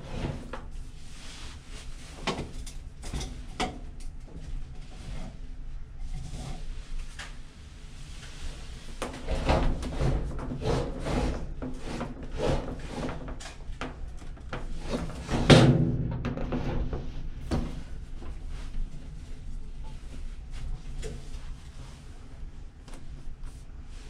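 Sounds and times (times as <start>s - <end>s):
dryer scraping on floor: 0.0s - 1.7s, 8.4s - 19.6s.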